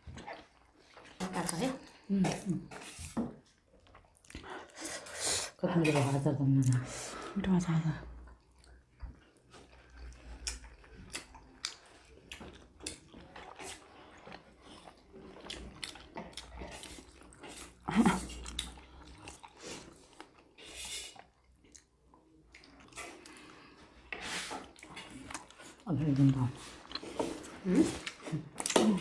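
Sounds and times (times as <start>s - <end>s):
people chewing food: 0.0s - 29.0s
food crunching: 8.3s - 29.0s.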